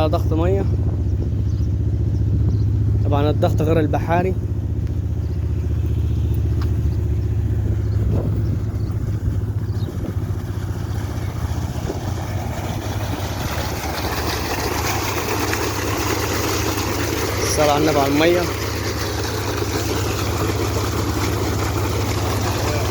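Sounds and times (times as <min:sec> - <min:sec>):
diesel engine running: 0:00.0 - 0:22.9
rushing water noise: 0:09.4 - 0:22.9.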